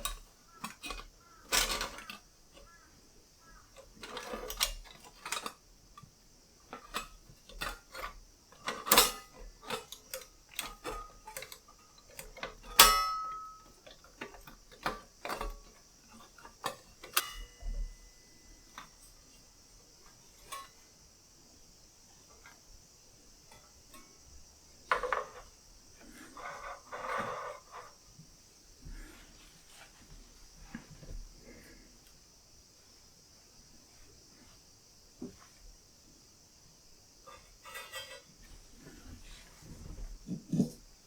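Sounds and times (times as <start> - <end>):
metal parts clicking and clinking: 0.0 - 2.8, 3.5 - 6.1, 6.7 - 17.9, 20.4 - 20.8
ringing metal clank: 12.6 - 13.8.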